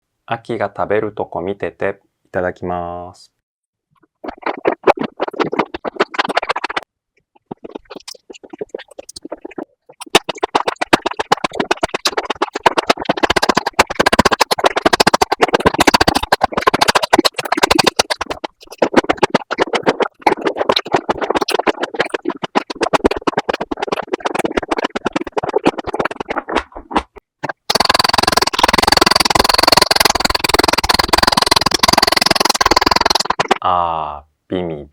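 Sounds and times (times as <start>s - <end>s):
fast crunchy biting and chewing: 7.6s - 33.6s.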